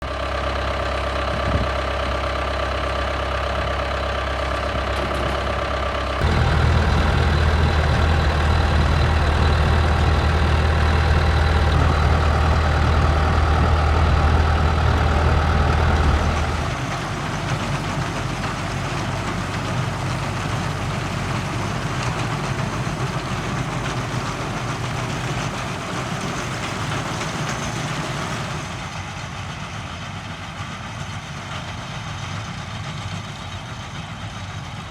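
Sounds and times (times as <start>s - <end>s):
tractor engine running: 0.1s - 34.9s
baler working: 6.2s - 28.9s.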